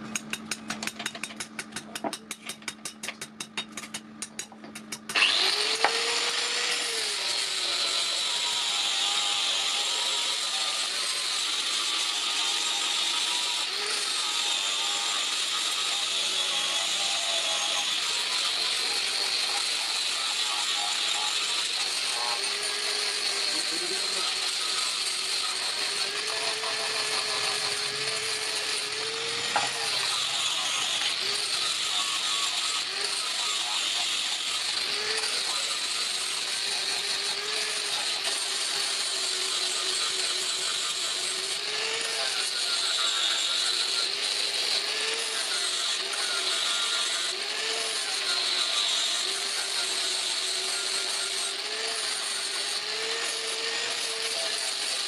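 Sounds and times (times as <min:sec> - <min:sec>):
motor-driven machine running: 0:05.2 - 0:07.2.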